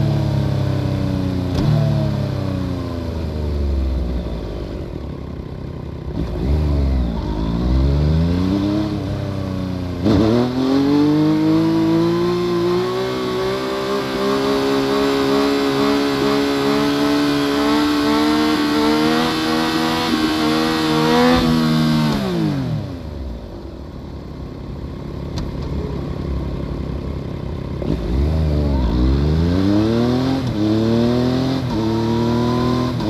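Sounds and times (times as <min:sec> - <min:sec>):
motorcycle engine revving: 0:06.0 - 0:23.6, 0:27.6 - 0:33.0.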